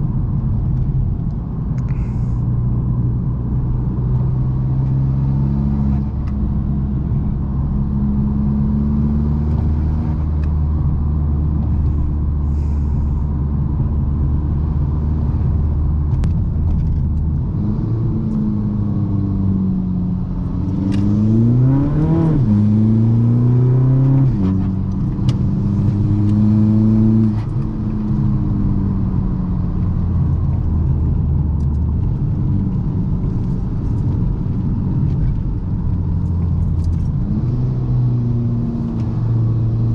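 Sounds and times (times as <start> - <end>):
diesel engine revving: 20.4 - 31.5.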